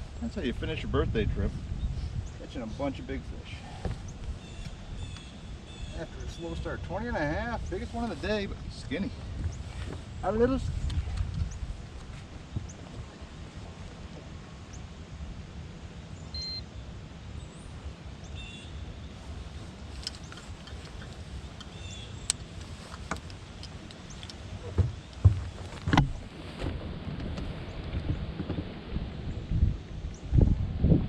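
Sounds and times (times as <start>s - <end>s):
faint bird chirps: 16.2s - 16.8s
knocks and bumps on boat: 24.6s - 29.0s.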